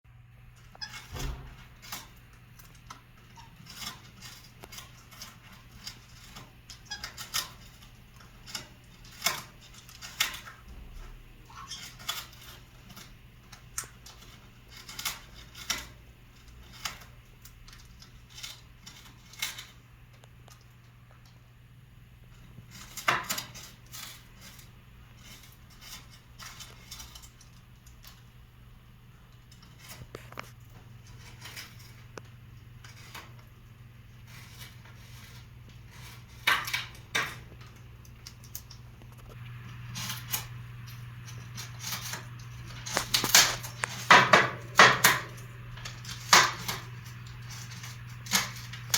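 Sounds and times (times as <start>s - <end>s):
steady low hum: 0.1s - 48.9s
parrot shredding wood with beak: 0.5s - 21.4s, 22.3s - 28.4s, 29.2s - 48.9s.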